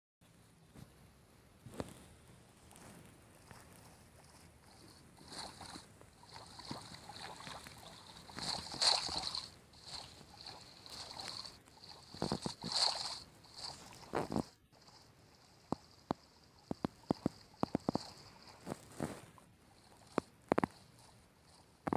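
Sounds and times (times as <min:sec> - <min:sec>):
water splashing and sloshing: 0:02.8 - 0:14.6.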